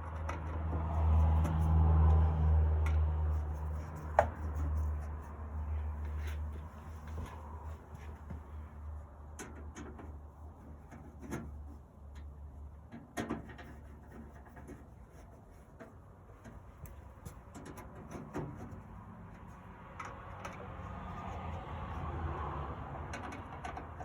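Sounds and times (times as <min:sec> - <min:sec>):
clicks and knocks of metal parts: 0:09.2 - 0:14.9, 0:15.7 - 0:18.8, 0:23.0 - 0:24.0.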